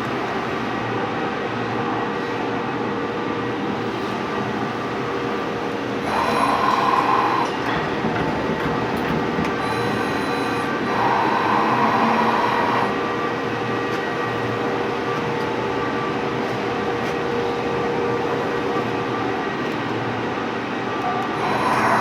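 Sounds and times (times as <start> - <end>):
lathe humming: 4.8 - 14.6, 21.3 - 22.0.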